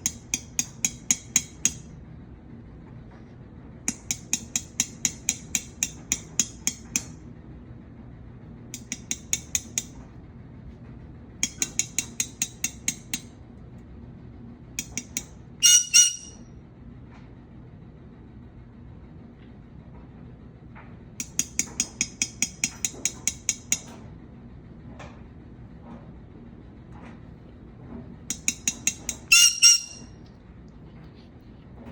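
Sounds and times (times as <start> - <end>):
beak tapping on glass: 0.0 - 1.8, 3.9 - 7.1, 11.4 - 13.3, 14.8 - 16.3, 28.3 - 30.0
parrot shrill calls: 15.6 - 16.4, 29.3 - 30.1.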